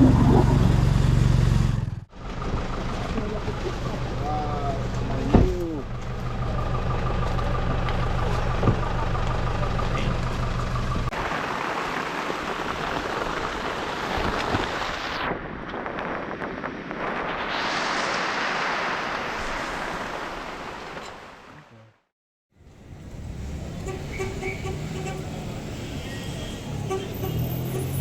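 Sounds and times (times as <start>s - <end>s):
rushing water: 11.1s - 15.3s, 17.2s - 21.7s
wind noise: 12.4s - 20.9s.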